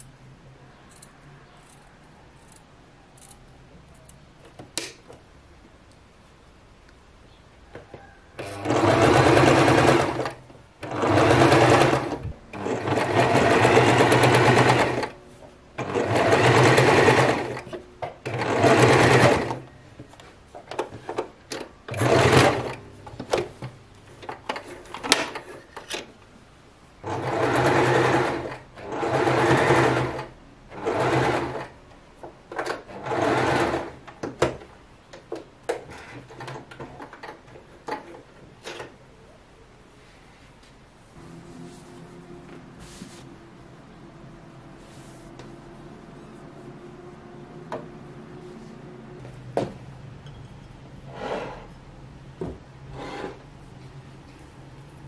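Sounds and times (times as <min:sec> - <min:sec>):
electric sewing machine stitching: 0:08.4 - 0:15.2, 0:15.8 - 0:17.6, 0:18.2 - 0:19.6, 0:21.9 - 0:22.8, 0:27.0 - 0:31.8, 0:32.8 - 0:34.0.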